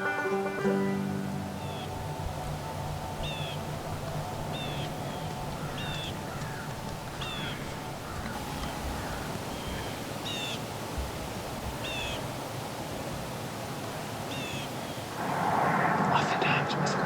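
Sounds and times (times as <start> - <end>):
outdoor background noise: 0.0 - 17.0
bird calling high sliding notes: 0.7 - 8.6.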